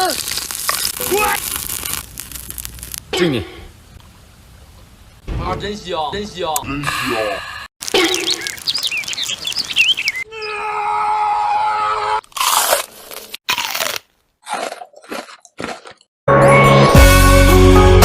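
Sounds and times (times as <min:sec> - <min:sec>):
crisp food chewed and crunched: 0:00.0 - 0:03.1, 0:07.8 - 0:10.0, 0:12.3 - 0:16.1.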